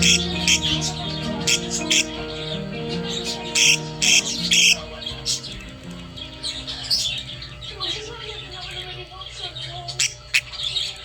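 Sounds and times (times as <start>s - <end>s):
background music: 0.0s - 7.9s
budgerigar chirping: 0.0s - 11.0s.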